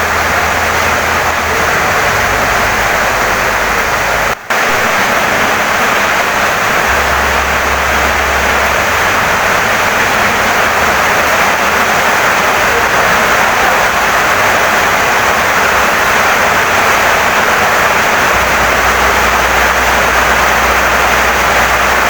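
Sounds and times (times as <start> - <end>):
heavy rain on wooden house: 0.0 - 22.0.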